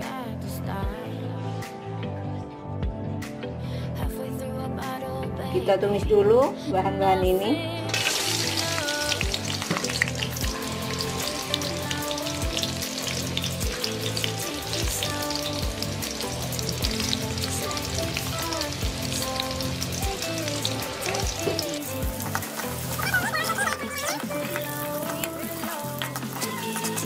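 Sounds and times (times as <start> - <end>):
oil sizzling in a wok: 7.9 - 27.0.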